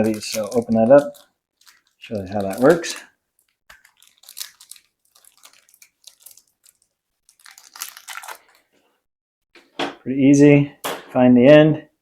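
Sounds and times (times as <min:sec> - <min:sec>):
packaging crinkling and tearing: 0:00.0 - 0:08.8.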